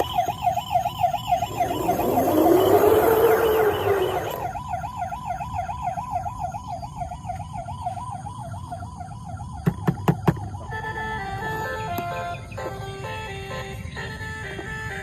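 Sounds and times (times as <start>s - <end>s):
electronic toy siren warbling: 0.0s - 8.2s.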